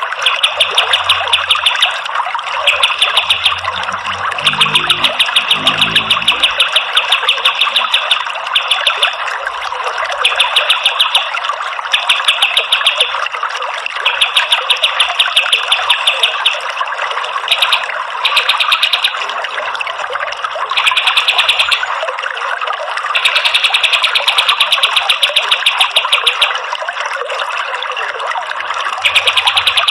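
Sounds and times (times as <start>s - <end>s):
running water: 0.0s - 29.9s
bird singing rapid trills: 2.6s - 8.8s.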